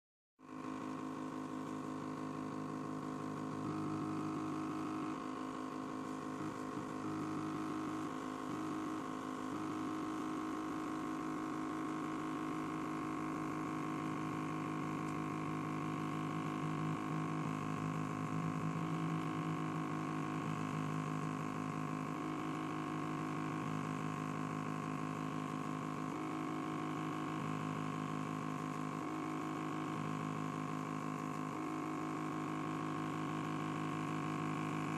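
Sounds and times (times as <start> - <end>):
stepper motor whining hum: 0.6 - 34.9.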